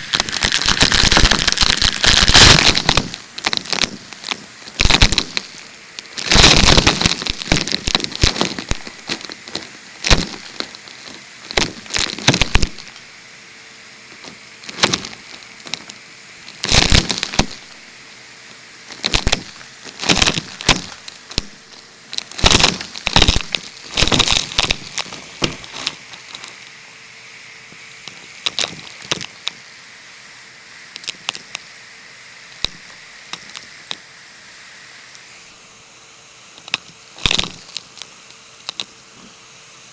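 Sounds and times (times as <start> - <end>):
debris rattling through hose: 0.0 - 13.2, 14.1 - 26.8, 27.8 - 29.5, 36.6 - 39.3.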